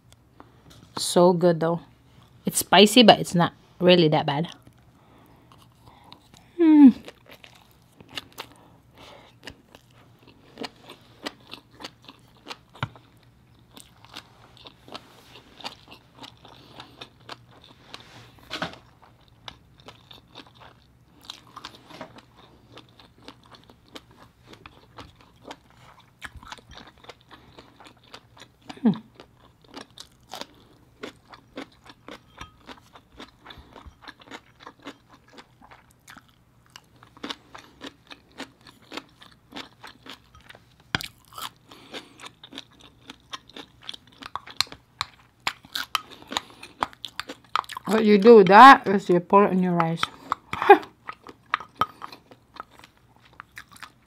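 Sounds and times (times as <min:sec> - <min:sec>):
woman humming mm: 0:06.5 - 0:07.0
wet chewing clicks and crunches: 0:09.3 - 0:18.0, 0:18.8 - 0:48.5, 0:49.8 - 0:54.0.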